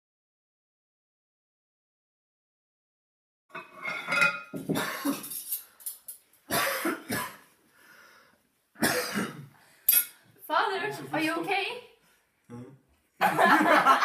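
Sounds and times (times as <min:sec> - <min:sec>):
man coughing: 0:04.6 - 0:05.3, 0:06.5 - 0:07.4, 0:08.8 - 0:09.5.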